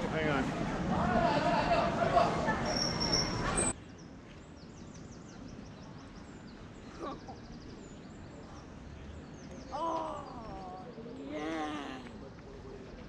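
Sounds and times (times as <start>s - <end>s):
birds chirping: 2.6s - 13.0s.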